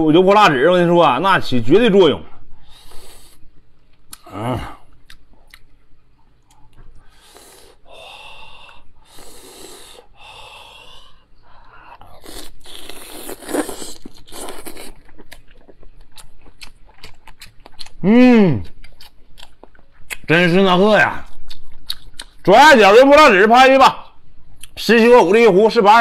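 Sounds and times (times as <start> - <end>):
person biting and chewing food: 4.0 - 5.8, 12.0 - 20.3, 21.2 - 22.4.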